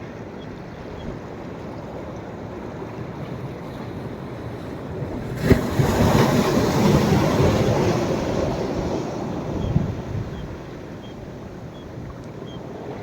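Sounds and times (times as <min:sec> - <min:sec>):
background surf: 0:00.0 - 0:13.0
wave breaking and washing up: 0:04.8 - 0:13.0.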